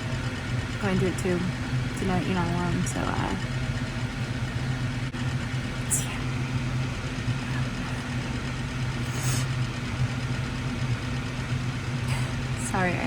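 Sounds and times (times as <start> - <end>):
electric fan humming: 0.0 - 13.0.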